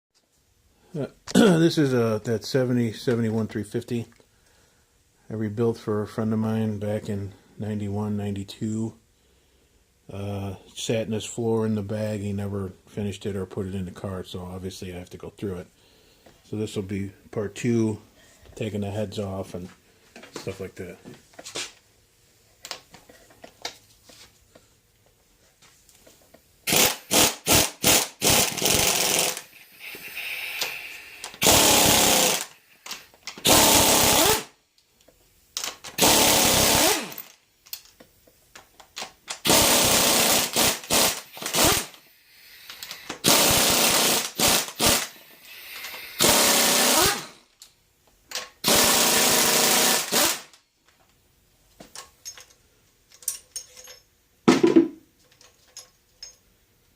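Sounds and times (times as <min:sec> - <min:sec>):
pneumatic impact wrench bursts: 0:26.6 - 0:32.6, 0:33.4 - 0:34.6, 0:35.9 - 0:37.3, 0:39.4 - 0:47.4, 0:48.6 - 0:50.6.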